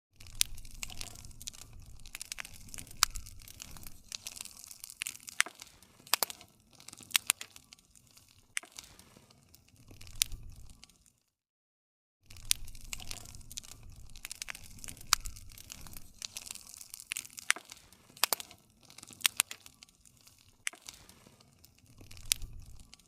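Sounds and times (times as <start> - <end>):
wood fire crackling: 0.2 - 11.3, 12.3 - 23.0.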